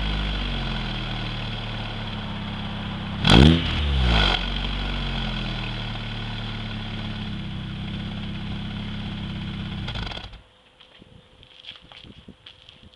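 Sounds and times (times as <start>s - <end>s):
car engine idling: 0.0s - 10.4s.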